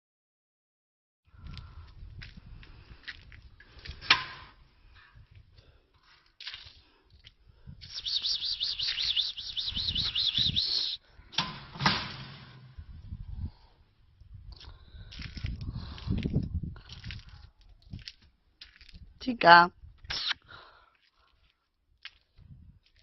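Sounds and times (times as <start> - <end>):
songbird warbling trill: 8.0 - 10.9.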